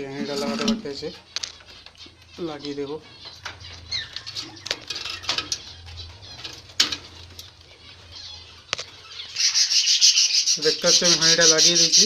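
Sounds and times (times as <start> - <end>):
budgerigar chirp: 1.6 - 6.8, 7.8 - 12.0.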